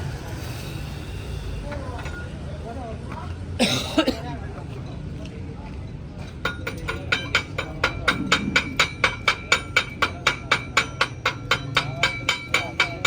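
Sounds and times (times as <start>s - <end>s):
hammer ringing on steel: 6.5s - 13.0s.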